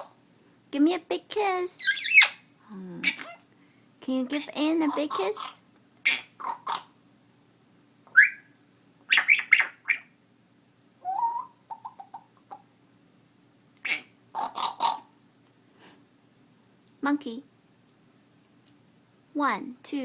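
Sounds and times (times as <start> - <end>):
parrot chirps: 1.8 - 3.4, 4.8 - 7.0, 8.1 - 10.2, 11.0 - 12.7, 13.8 - 15.2
parrot squawks and clicky calls: 1.8 - 3.5, 4.8 - 7.0, 8.1 - 10.2, 11.0 - 12.7, 13.8 - 15.2
parrot whistled note: 8.2 - 8.5.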